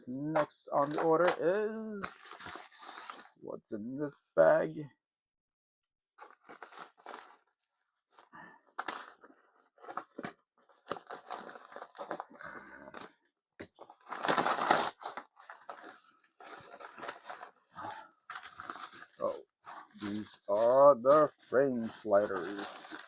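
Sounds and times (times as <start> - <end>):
packaging bag tearing and crinkling: 13.8 - 21.3.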